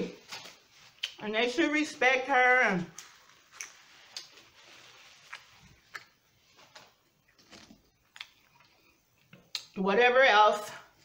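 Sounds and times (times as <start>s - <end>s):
quiet chewing mouth clicks: 3.5s - 4.4s, 5.3s - 6.2s, 8.0s - 9.8s.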